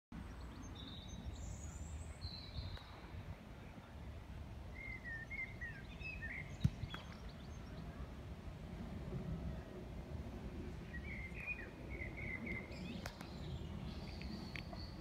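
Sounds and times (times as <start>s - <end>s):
small birds chirping: 4.7s - 8.1s, 10.9s - 15.0s
steady low rumble: 6.6s - 15.0s.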